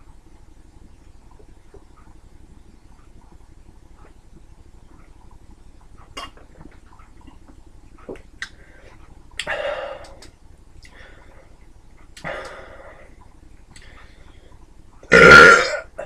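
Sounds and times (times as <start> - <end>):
person gulping: 6.1 - 7.4, 12.2 - 12.8, 15.0 - 16.0.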